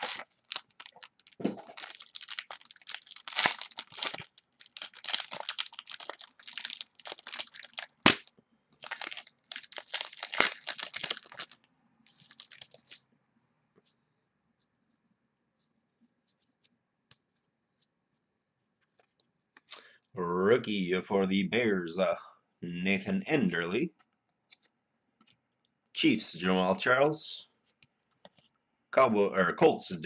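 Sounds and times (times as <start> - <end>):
plastic packaging crinkling: 0.0 - 13.0
sharp crack: 8.0 - 8.3.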